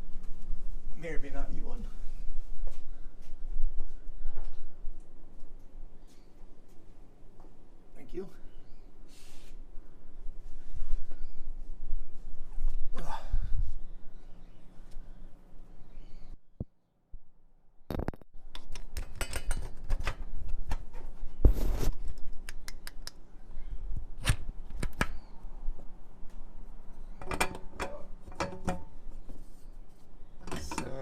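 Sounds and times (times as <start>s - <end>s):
metal tools clinking and knocking: 19.1s - 19.8s, 30.4s - 31.0s.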